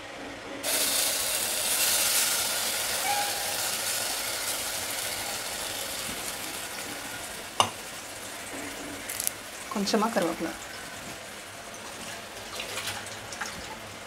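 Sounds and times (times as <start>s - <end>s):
paste sizzling in hot oil: 0.6s - 12.4s.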